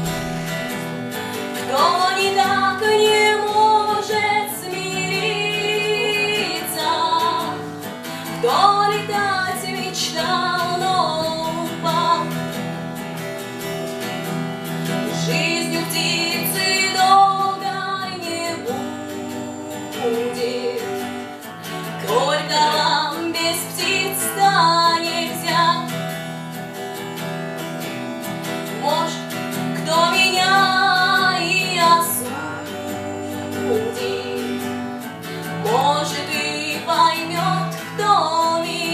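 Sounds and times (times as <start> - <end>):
sustained bass: 0.0 - 0.9
woman singing: 0.0 - 12.8, 14.9 - 26.2, 28.6 - 38.9
acoustic guitar: 0.0 - 38.9.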